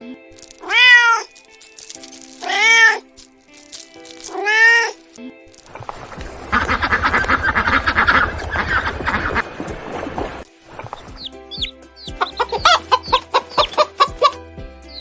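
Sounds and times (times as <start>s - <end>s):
background music: 0.0s - 15.0s
cat meowing: 0.5s - 1.4s, 2.4s - 3.1s, 4.3s - 5.0s.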